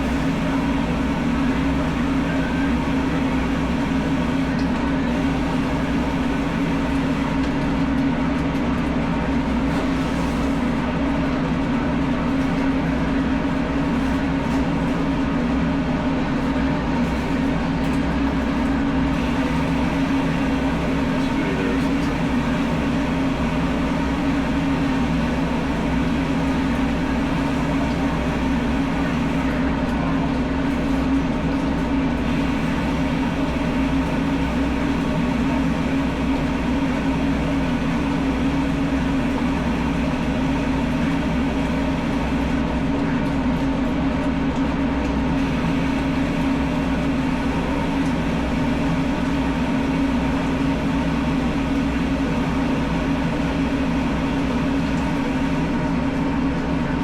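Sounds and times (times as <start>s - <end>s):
machine hum: 0.0s - 44.2s, 44.9s - 57.0s.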